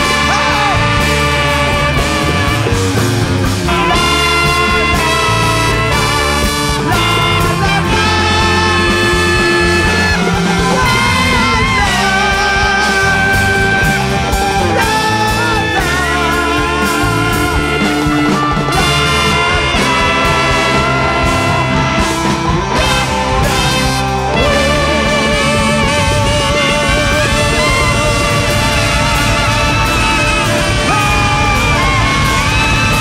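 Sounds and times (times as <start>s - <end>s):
free jazz big band: 0.0s - 33.0s.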